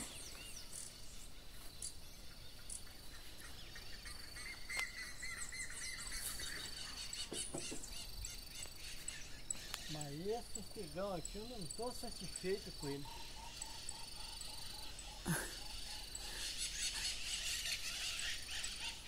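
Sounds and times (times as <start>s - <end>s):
birds chirping and calling: 0.0s - 19.0s
faint knocks: 7.3s - 7.9s.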